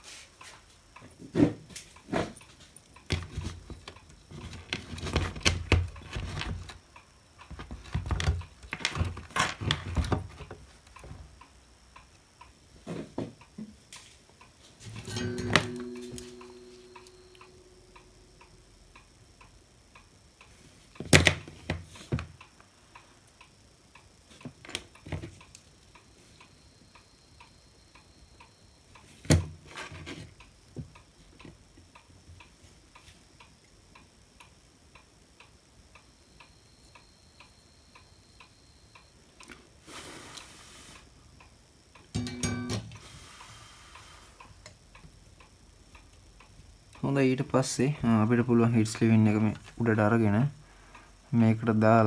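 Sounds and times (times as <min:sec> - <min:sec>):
faint steady ticking: 0:00.2 - 0:01.2, 0:01.8 - 0:09.3, 0:10.6 - 0:29.2, 0:30.3 - 0:52.0
short hiss: 0:39.8 - 0:41.1.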